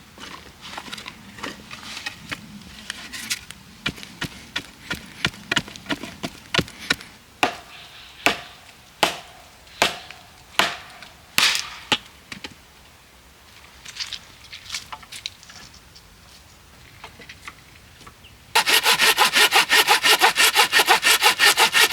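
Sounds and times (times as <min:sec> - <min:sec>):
wood being chopped: 0:18.6 - 0:21.9.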